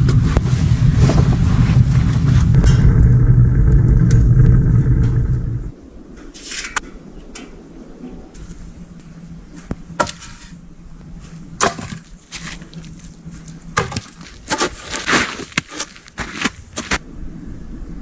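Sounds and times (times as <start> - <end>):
wood cracking and knocking: 11.6 - 17.0.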